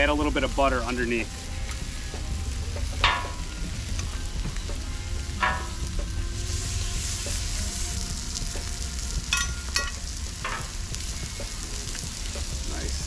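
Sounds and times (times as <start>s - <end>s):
food sizzling on a griddle: 0.0s - 13.0s
low rumble: 0.0s - 13.0s
metal utensils clinking on griddle: 3.0s - 3.6s, 5.4s - 5.9s, 9.3s - 10.8s.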